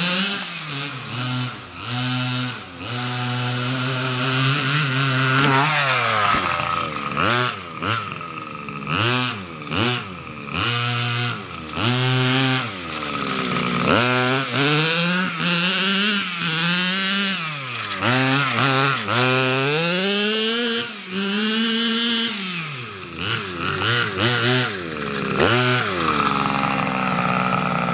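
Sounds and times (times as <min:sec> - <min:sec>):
two-stroke engine revving: 0:00.0 - 0:27.9.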